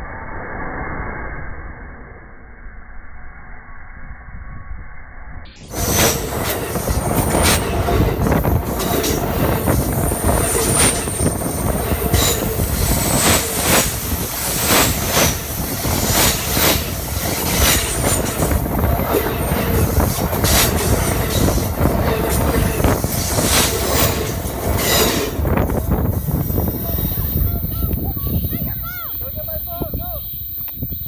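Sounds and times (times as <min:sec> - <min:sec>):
train rumbling overhead: 0:05.6 - 0:30.7
train wheels clacking: 0:05.7 - 0:28.1.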